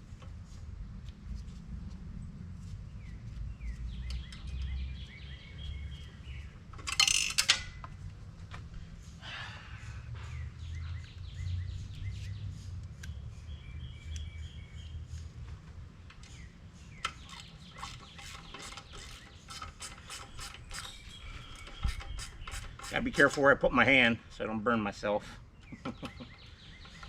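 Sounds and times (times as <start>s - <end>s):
low steady rumble: 0.0s - 6.8s
birds chirping and whistling: 2.9s - 6.7s, 8.8s - 15.5s, 16.2s - 24.2s, 25.2s - 27.0s
ratchet wrench clicking: 6.8s - 7.8s.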